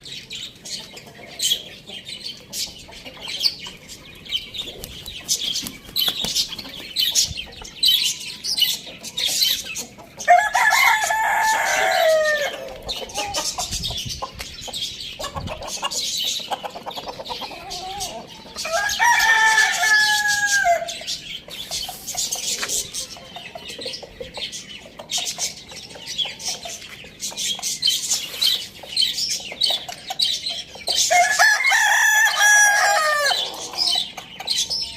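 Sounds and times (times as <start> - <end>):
small birds chirping: 0.0 - 34.9
hens clucking: 0.4 - 34.9
rooster crowing: 10.3 - 12.7, 18.7 - 20.9, 31.1 - 33.5.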